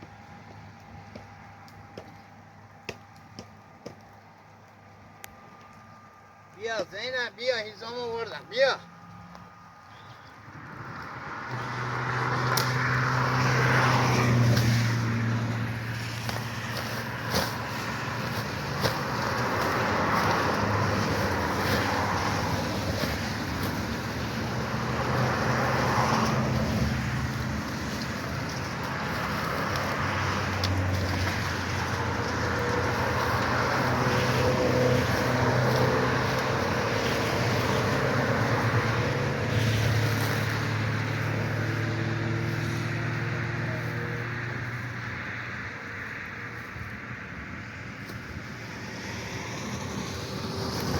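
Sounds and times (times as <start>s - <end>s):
road and wind noise: 0.0s - 50.9s
car engine humming: 7.6s - 46.7s.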